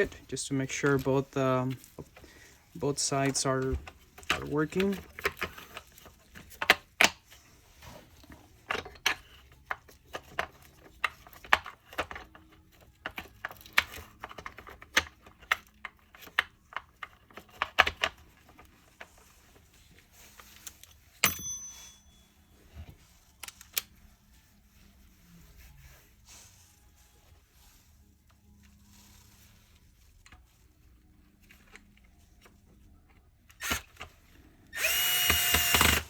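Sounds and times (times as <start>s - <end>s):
plastic parts clicking and knocking: 3.2s - 7.2s, 8.2s - 19.2s.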